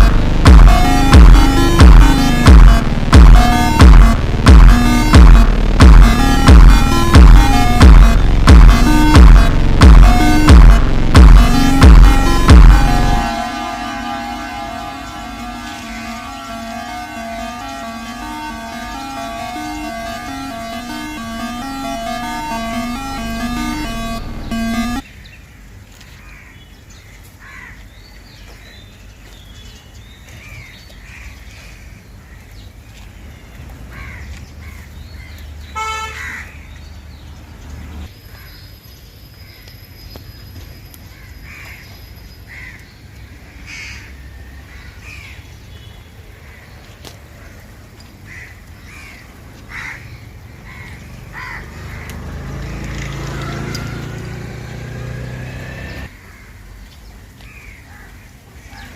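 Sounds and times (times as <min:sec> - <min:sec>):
horn toot: 0:00.0 - 0:25.0, 0:35.8 - 0:36.2
low traffic rumble: 0:00.0 - 0:25.0, 0:43.3 - 0:57.2
crows cawing: 0:27.4 - 0:27.8, 0:33.9 - 0:34.9, 0:35.8 - 0:36.7, 0:42.5 - 0:42.8, 0:43.5 - 0:45.4, 0:48.2 - 0:52.2, 0:56.1 - 0:56.7.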